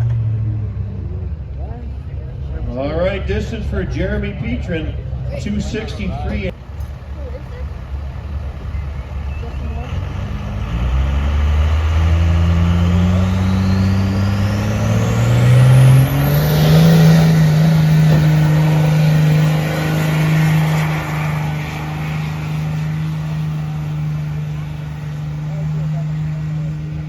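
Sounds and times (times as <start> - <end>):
vehicle engine revving under load: 0.0 - 27.0.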